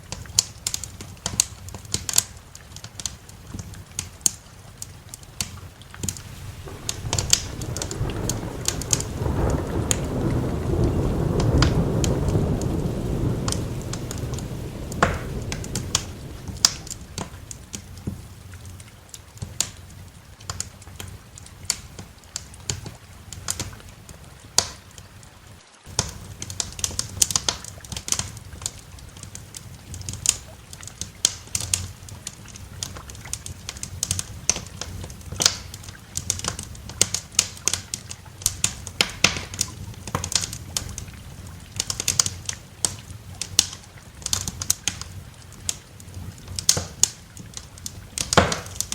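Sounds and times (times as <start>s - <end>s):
wood fire crackling: 0.0s - 48.9s
thunder rolling: 6.0s - 18.5s.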